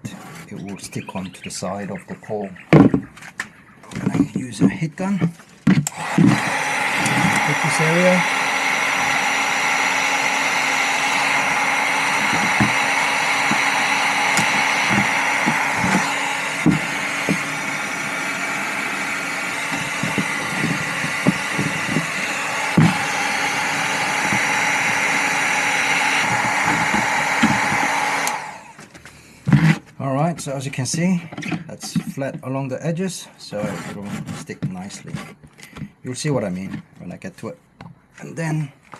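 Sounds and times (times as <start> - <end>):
heat gun fan blowing: 5.8 - 28.8.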